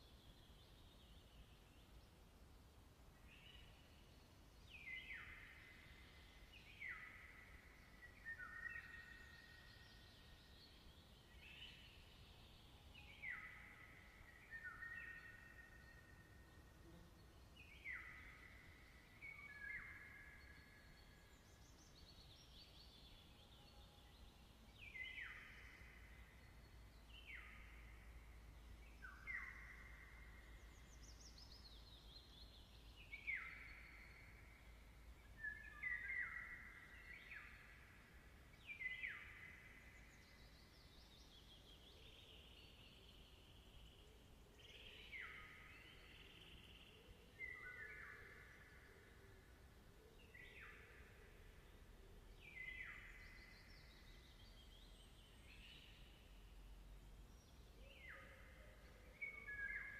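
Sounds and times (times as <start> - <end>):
birds singing: 17.1 - 37.9.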